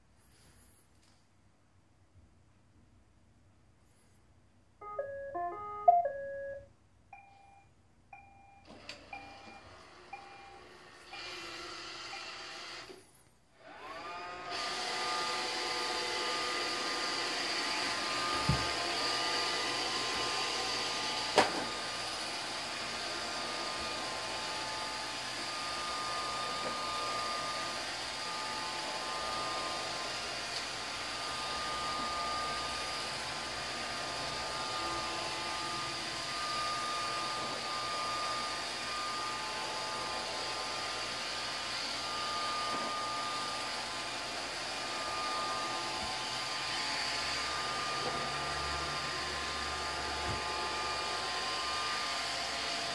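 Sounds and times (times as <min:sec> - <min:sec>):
short electronic tune: 0:04.8 - 0:06.6
robot vacuum motors whirring: 0:09.8 - 0:13.0, 0:13.6 - 0:52.9.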